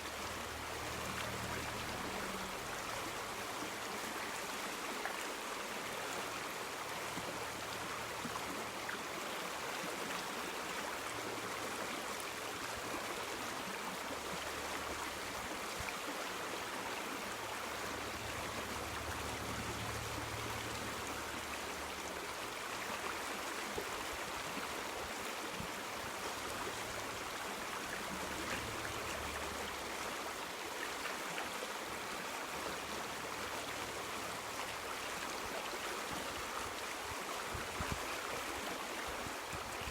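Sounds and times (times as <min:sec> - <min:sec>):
river water rushing: 0:00.0 - 0:39.9
faint low rumble: 0:17.8 - 0:22.1.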